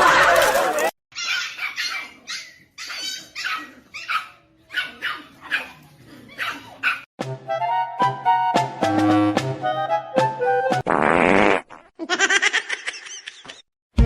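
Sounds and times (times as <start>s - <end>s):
dog barking and yipping: 1.2s - 7.1s.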